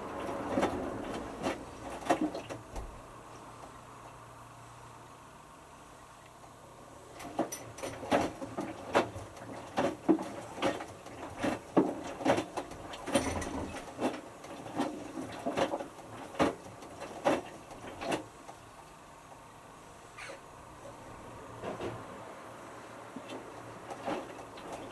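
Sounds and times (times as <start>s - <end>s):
washing machine drum tumbling: 0.0s - 3.1s, 7.1s - 18.3s, 23.2s - 24.9s.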